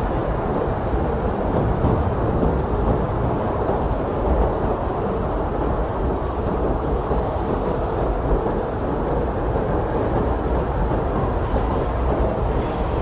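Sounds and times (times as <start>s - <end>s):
blizzard wind blowing: 0.0s - 13.0s.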